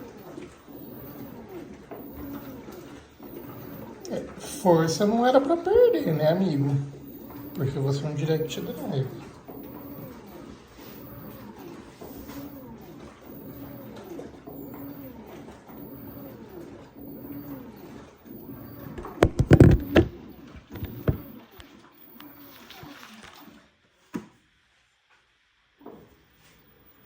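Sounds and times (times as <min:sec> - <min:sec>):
washing machine agitating: 0:00.0 - 0:24.5
loud knocks in washing machine: 0:19.0 - 0:21.4.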